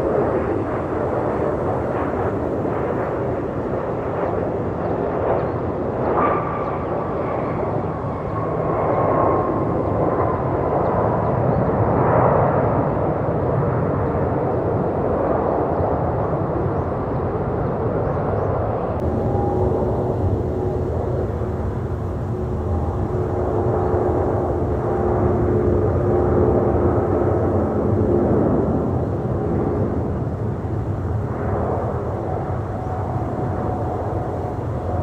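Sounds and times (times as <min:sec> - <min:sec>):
jet airliner passing: 0:00.0 - 0:35.0
thin jet engine whine: 0:00.0 - 0:35.0.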